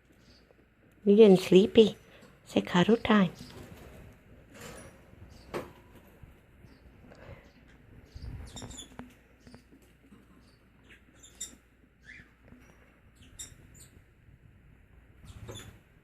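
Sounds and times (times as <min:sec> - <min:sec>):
parakeets chirping: 0:06.6 - 0:14.1.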